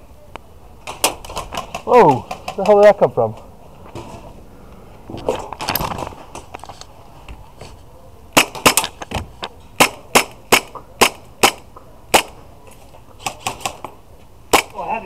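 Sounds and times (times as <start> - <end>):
airsoft pistol shots: 8.4 - 8.9, 9.8 - 12.4, 14.5 - 14.9.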